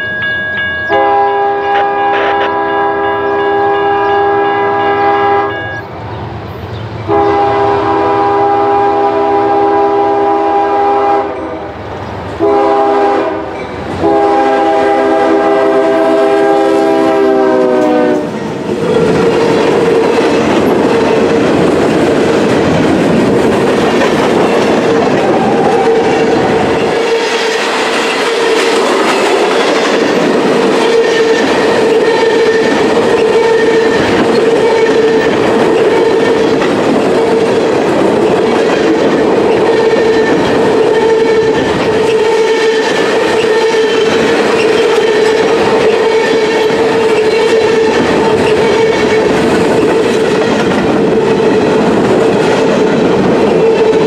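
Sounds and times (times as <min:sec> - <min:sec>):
freight train rumbling: 0:00.0 - 0:54.0
train air horn: 0:00.9 - 0:05.8, 0:07.1 - 0:11.8, 0:12.4 - 0:18.4, 0:30.8 - 0:36.4, 0:39.7 - 0:49.3
wheels clickety-clack: 0:18.3 - 0:54.0.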